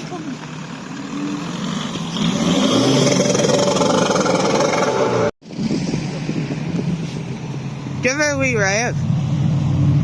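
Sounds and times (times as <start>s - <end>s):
car engine revving: 0.0s - 5.4s.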